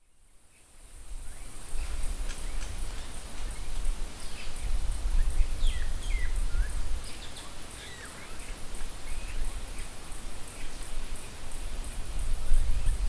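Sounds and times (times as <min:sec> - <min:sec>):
steady high hiss: 0:00.0 - 0:13.0
birds chirping and whistling: 0:05.2 - 0:08.5.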